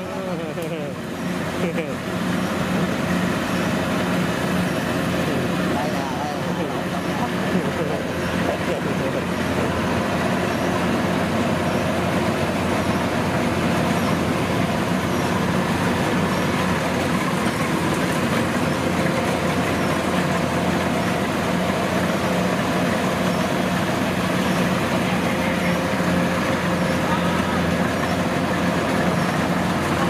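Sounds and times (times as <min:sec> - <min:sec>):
diesel engine droning: 0:00.0 - 0:30.0.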